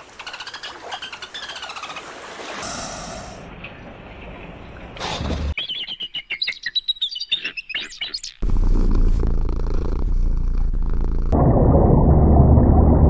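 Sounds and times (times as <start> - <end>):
high-pitched chirping calls: 5.6 - 8.4
low rumbling noise: 10.0 - 13.0.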